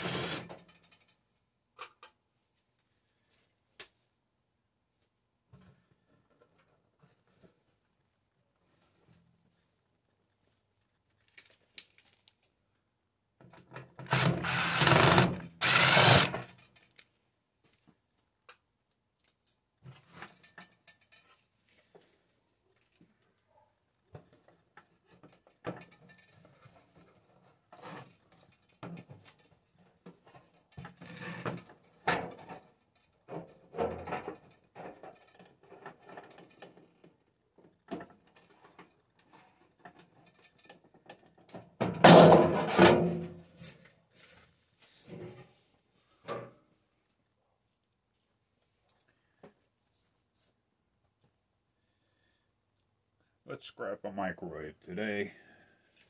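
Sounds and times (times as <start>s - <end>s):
power tool bursts: 0.0s - 0.5s, 14.1s - 16.4s
knocks and rattles of tools: 13.4s - 17.1s, 24.2s - 43.3s.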